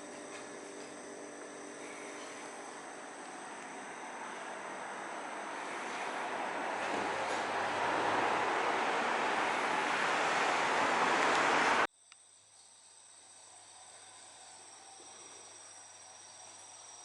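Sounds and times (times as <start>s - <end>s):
loud even rushing noise: 4.6s - 11.9s.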